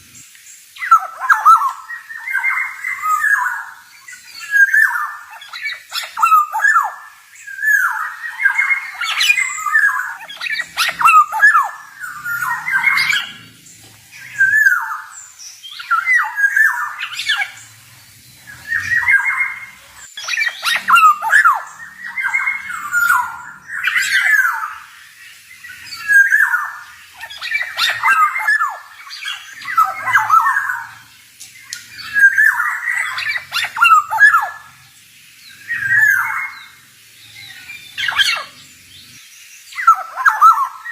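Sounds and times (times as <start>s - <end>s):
bird singing whistled notes: 0.1s - 40.9s.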